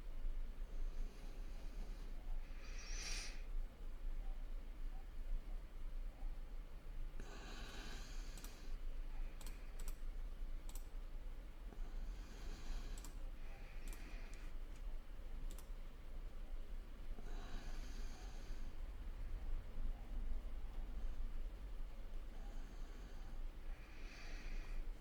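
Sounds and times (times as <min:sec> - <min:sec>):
steady low hum: 0:00.0 - 0:25.0
computer mouse clicks: 0:08.2 - 0:11.0, 0:12.8 - 0:13.2, 0:13.8 - 0:15.8.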